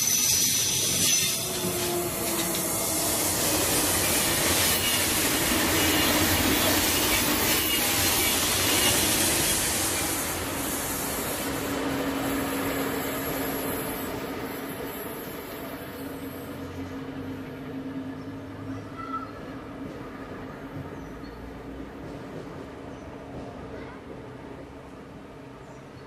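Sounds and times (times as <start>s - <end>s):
high-speed train passing: 0.0s - 26.0s.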